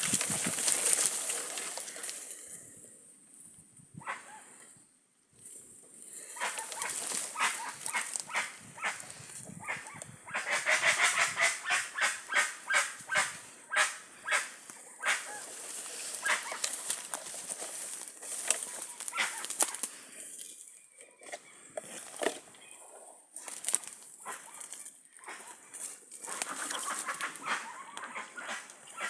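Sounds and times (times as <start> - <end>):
birds honking calls: 6.4 - 19.8.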